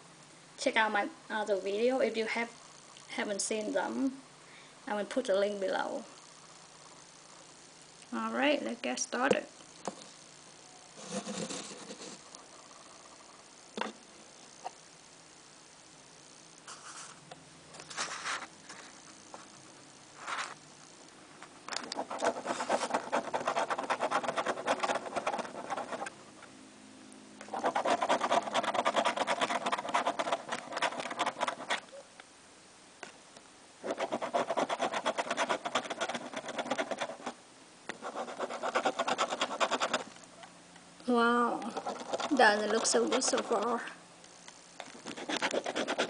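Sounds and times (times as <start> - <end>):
scratching a lottery ticket: 21.9 - 26.1, 27.5 - 32.0, 33.8 - 40.1, 41.6 - 43.9, 45.0 - 46.0.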